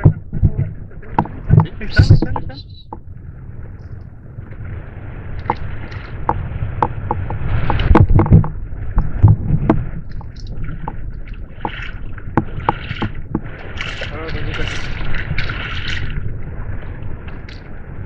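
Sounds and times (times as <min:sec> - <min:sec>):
knocks and clatter on kayak: 0:00.0 - 0:03.2, 0:05.4 - 0:16.2
steady low rumble: 0:00.0 - 0:18.0.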